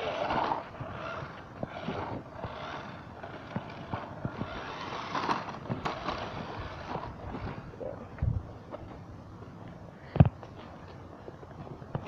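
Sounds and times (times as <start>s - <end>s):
toy car driving and rattling: 0.0s - 7.7s.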